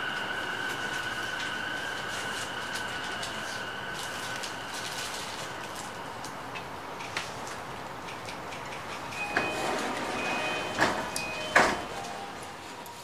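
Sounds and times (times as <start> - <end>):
high brake squeal: 0.0 - 6.2, 9.1 - 12.4
electric train running: 0.0 - 13.0
sharp knocks of train halting: 10.6 - 12.1.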